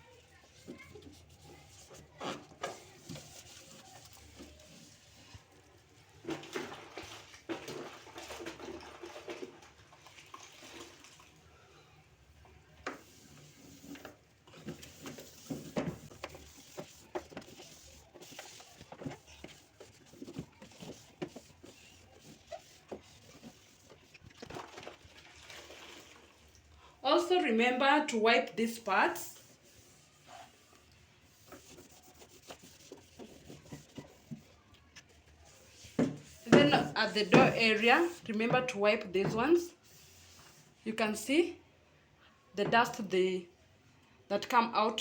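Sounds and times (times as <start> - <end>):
towel rubbing plastic: 0.0 - 5.9, 12.9 - 26.1, 28.8 - 38.6, 39.2 - 40.8.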